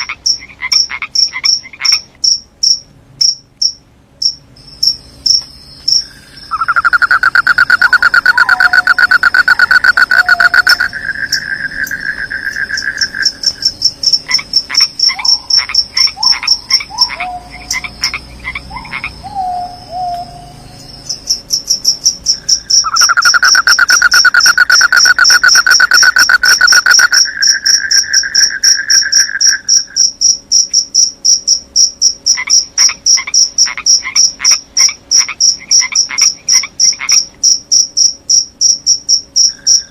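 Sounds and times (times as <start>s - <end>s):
high rapid cricket trill: 0.0s - 19.3s, 20.5s - 39.9s
short falling calls: 6.1s - 13.4s.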